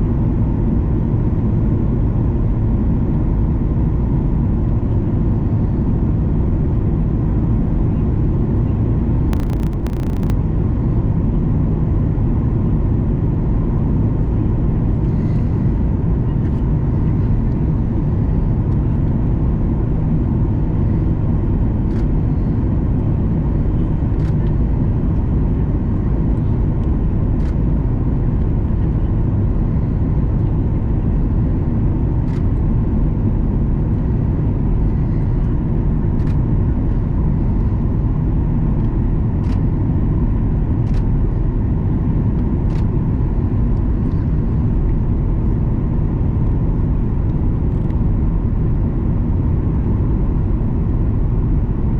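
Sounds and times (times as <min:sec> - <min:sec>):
faint steady tone: 0:09.4 - 0:10.3
airplane cabin rumble: 0:09.4 - 0:10.4
faint clicks: 0:09.4 - 0:10.4.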